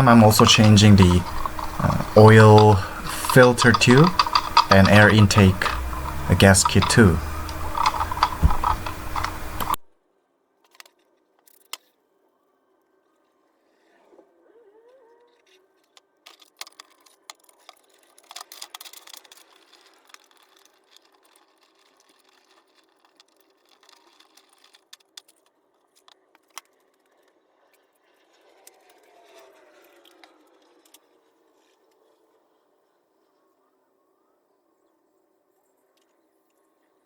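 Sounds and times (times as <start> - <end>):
metallic clicks of hand tools: 0.0 - 9.8.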